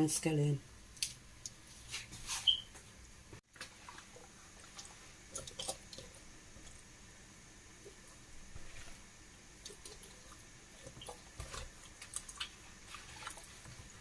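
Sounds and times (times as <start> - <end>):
short high squeak: 2.4 - 2.7.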